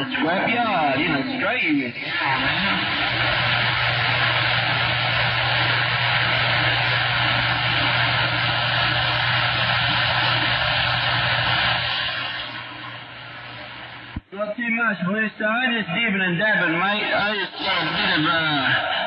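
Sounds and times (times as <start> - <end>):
steady low hum: 0.0 - 14.6
radio static hiss: 0.0 - 19.0.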